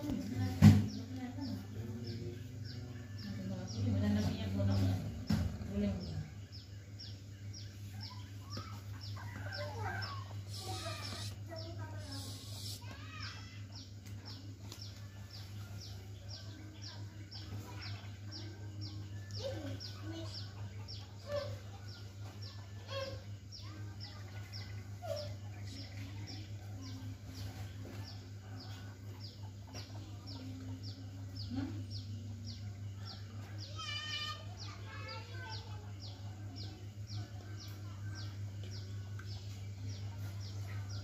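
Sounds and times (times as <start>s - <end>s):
bird chirping: 0.1s - 41.0s
fainter lower bird calls: 7.8s - 13.6s.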